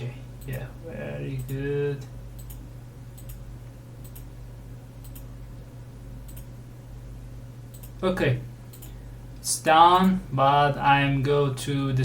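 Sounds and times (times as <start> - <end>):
low electrical hum: 0.0 - 12.0
computer mouse clicks: 2.4 - 3.4, 4.0 - 4.3, 5.0 - 5.3, 6.2 - 6.5, 7.7 - 8.0, 8.7 - 9.0.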